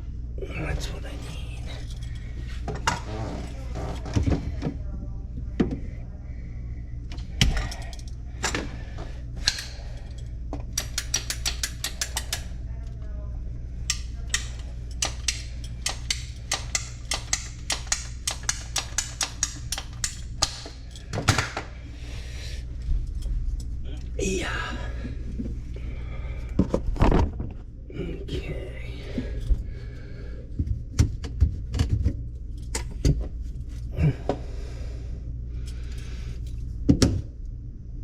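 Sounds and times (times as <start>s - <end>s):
steady low hum: 0.0s - 38.0s
tools clicking and knocking: 9.4s - 12.5s, 13.9s - 21.7s
fast run of clicks: 10.7s - 12.5s.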